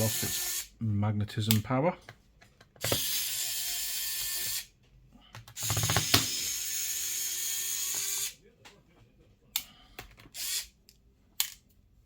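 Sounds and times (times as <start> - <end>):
electric screwdriver running: 2.9 - 4.6, 5.6 - 8.4.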